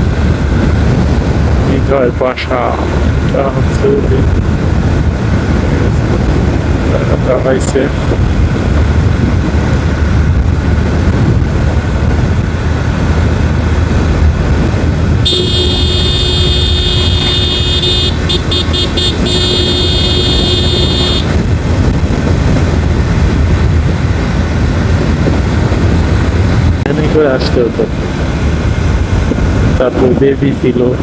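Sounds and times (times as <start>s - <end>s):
motorcycle engine and wind rumble: 0.0s - 31.0s
high-pitched vehicle horn: 15.2s - 21.4s.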